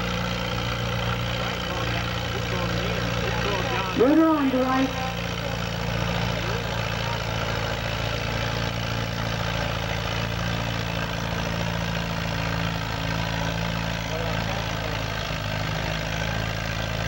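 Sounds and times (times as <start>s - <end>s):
tractor engine running steadily: 0.0s - 17.0s.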